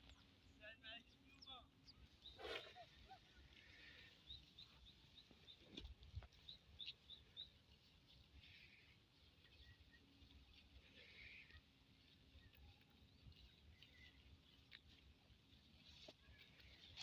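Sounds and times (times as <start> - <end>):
small bird chirping: 3.8 - 8.0, 9.3 - 15.2.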